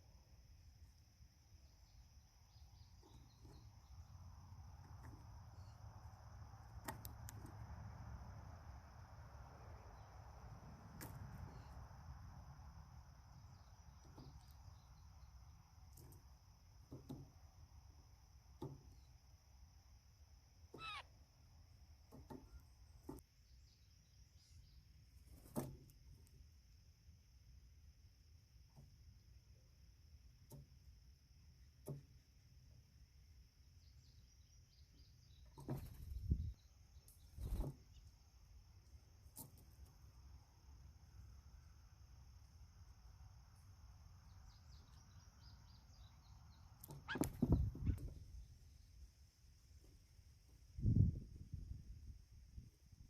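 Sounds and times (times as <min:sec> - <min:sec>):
bird short falling call: 0:20.7 - 0:21.1
faint high chirps: 0:20.7 - 0:21.1
low wind-like rumble: 0:35.8 - 0:36.7, 0:50.6 - 0:53.0.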